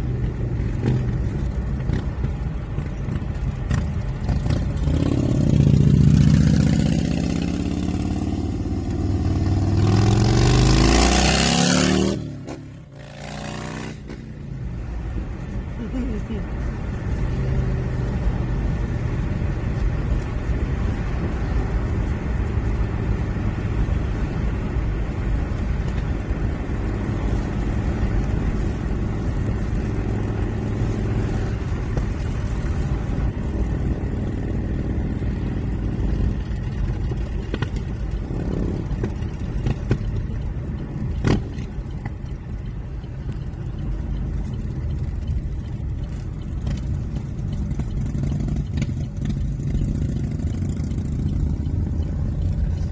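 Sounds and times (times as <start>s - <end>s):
motorcycle engine running: 0.0s - 15.0s, 25.6s - 52.9s
wind and road rush: 0.0s - 52.9s.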